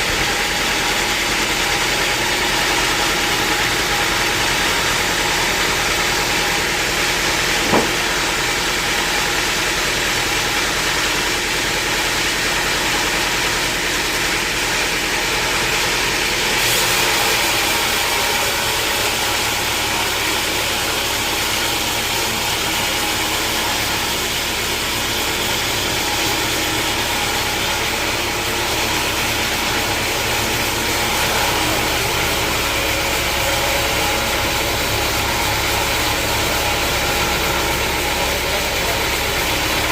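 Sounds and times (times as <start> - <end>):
sawmill machinery running: 0.0 - 39.9
sharp knock: 7.6 - 8.2.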